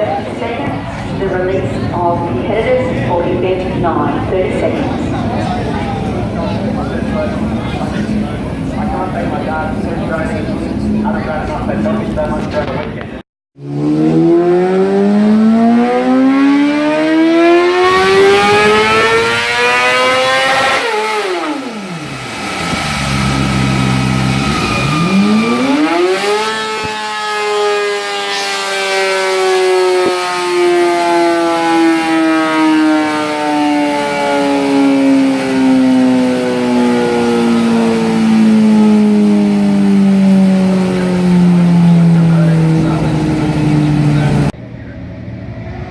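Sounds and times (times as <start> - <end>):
racing motorcycle engine high revs: 13.6 - 44.6.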